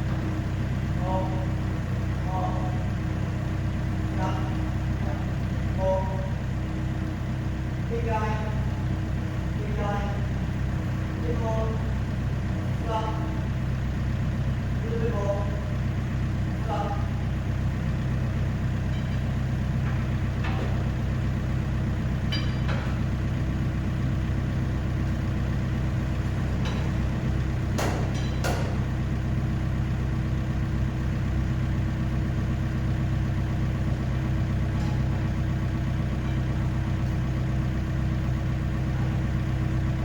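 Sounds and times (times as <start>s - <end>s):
diesel engine idling: 0.0s - 40.0s
sharp knocks: 27.7s - 28.9s.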